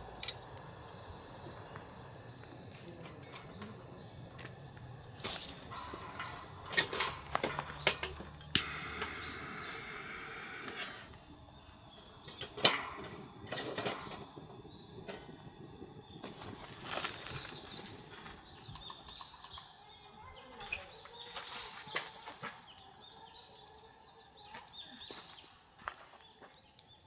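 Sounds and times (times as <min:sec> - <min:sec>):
soft hiss: 0:00.0 - 0:18.8
objects clicking and knocking: 0:01.7 - 0:11.2.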